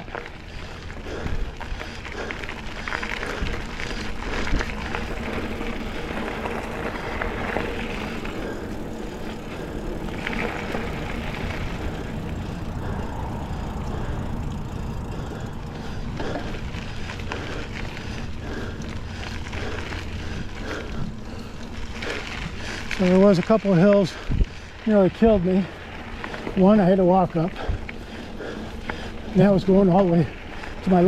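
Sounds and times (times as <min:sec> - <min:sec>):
wind rumbling on microphone: 0:00.0 - 0:24.9
bike tyres rolling on dirt: 0:00.0 - 0:31.0.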